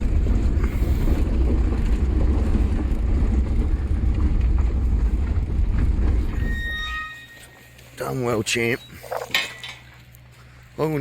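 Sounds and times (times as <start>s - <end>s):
knocks and rattles: 0.0s - 7.0s
vehicle driving rumble: 0.0s - 11.0s.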